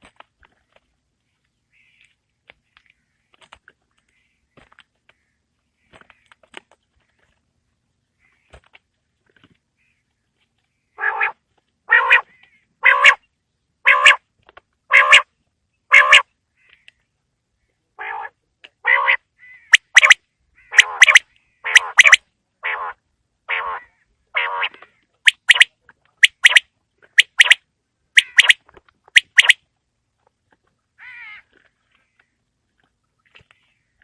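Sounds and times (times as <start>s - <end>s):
quail calling: 10.9s - 14.2s, 14.9s - 15.3s, 15.9s - 16.8s, 18.0s - 26.6s, 27.2s - 27.6s, 28.2s - 28.6s, 29.2s - 29.6s
sharp clicks: 19.8s - 20.2s, 20.8s - 22.2s, 25.3s - 26.6s, 27.2s - 27.6s, 28.2s - 28.6s, 29.2s - 29.6s.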